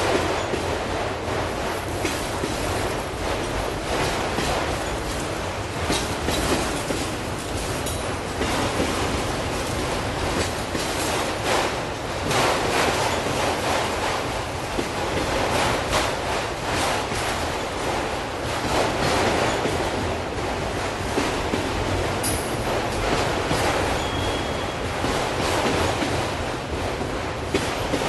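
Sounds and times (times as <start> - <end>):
train wheels rumbling on rail: 0.0 - 28.0
clicks over rail joints: 1.7 - 17.5.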